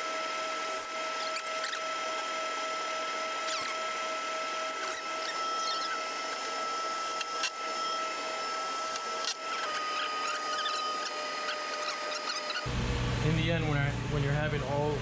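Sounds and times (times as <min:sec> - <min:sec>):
short high squeaks: 0:01.1 - 0:01.9, 0:03.4 - 0:04.0, 0:04.7 - 0:06.5, 0:09.2 - 0:12.7.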